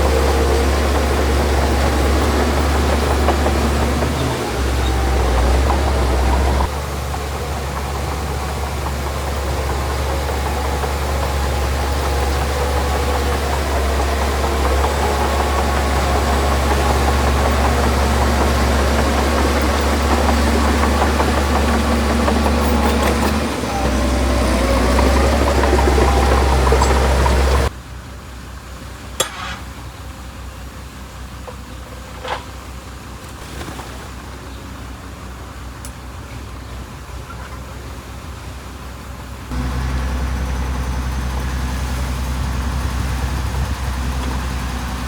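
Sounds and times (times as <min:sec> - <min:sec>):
heavy diesel engine rumbling: 0:00.0 - 0:45.0.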